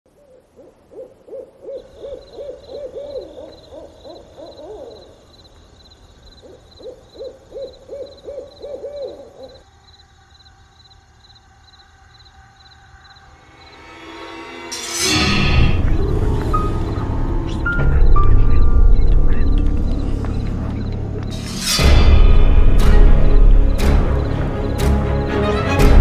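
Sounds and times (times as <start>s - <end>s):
bird hooting: 0.1s - 5.2s, 6.4s - 9.6s
high insect chirp: 0.1s - 25.4s.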